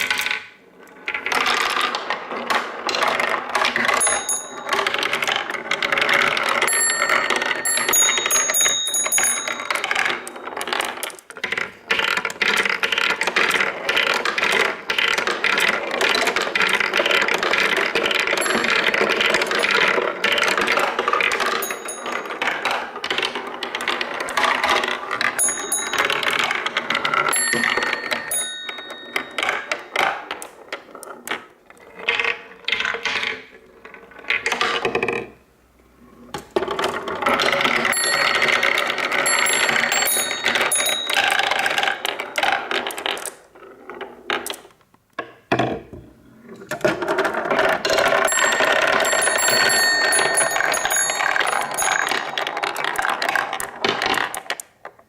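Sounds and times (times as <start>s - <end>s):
marbles rattling through wooden run: 0.0s - 35.3s, 36.3s - 44.7s, 46.7s - 55.0s
bright ringing pings: 6.7s - 10.3s, 27.4s - 29.8s, 48.3s - 52.6s.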